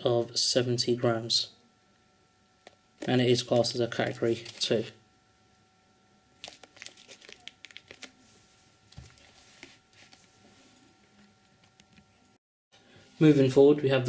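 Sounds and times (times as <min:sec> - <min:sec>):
packaging crinkling and rustling: 0:06.4 - 0:10.4.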